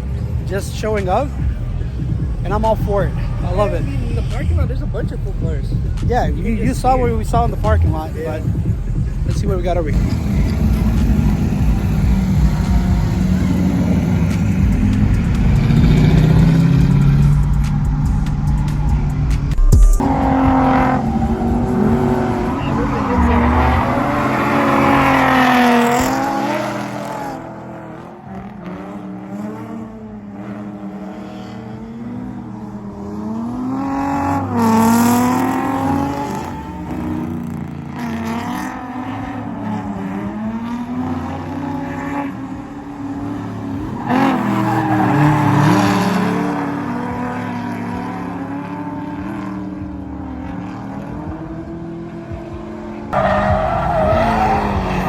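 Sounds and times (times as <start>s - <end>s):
car engines revving: 0.0s - 55.0s
tyre squeal: 9.9s - 11.3s, 53.2s - 55.0s.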